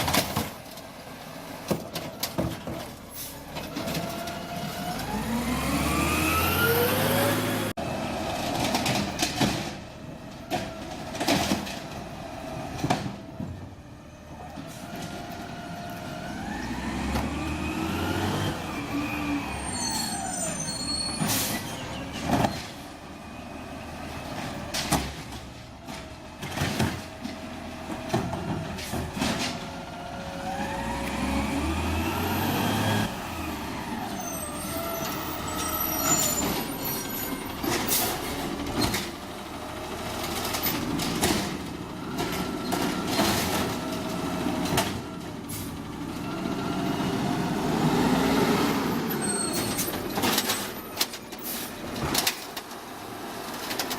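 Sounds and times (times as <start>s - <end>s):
truck engine revving: 3.5s - 9.4s, 14.7s - 20.7s, 29.6s - 50.9s.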